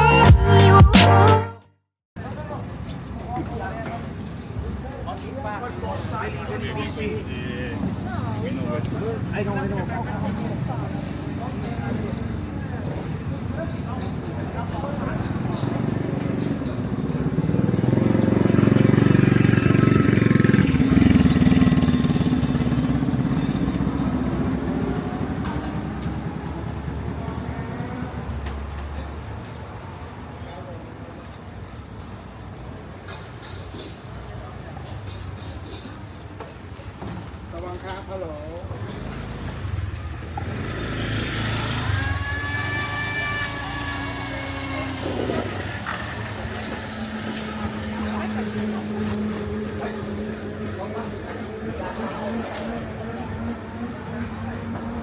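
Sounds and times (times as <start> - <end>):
vehicle engine rumble: 2.4 - 30.8.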